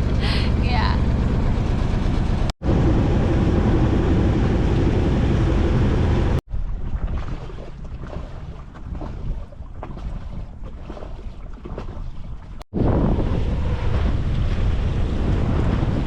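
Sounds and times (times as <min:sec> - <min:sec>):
wind on microphone: 0:02.6 - 0:16.0
water splashing: 0:05.1 - 0:12.6.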